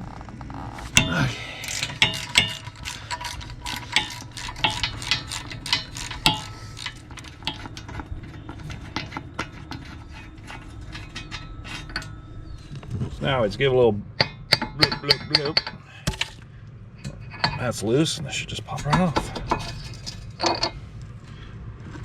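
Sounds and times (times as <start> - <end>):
hand ratchet clicking: 0.8 - 8.0
metal tools clinking on steel: 0.8 - 13.4, 14.2 - 16.4, 18.7 - 20.8.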